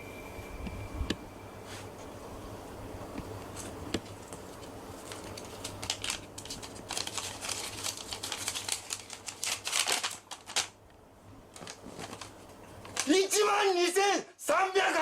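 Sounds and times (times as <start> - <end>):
low steady hum: 0.0 - 13.0
rustling and crinkling: 3.1 - 10.8, 11.5 - 13.2.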